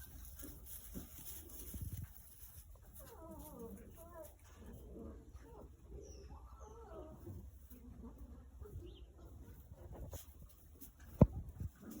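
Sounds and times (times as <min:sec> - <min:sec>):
shuffling: 0:00.0 - 0:12.0
faint puppy sounds: 0:01.5 - 0:10.2.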